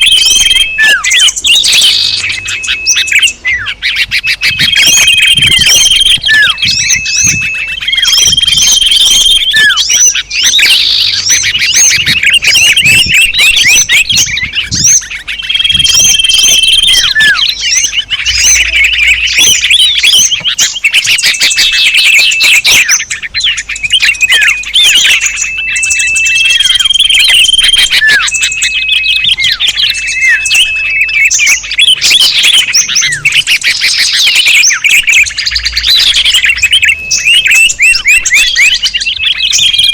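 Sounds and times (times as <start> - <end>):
small birds chirping and trilling: 0.0 - 39.9
level whistles: 23.7 - 39.9.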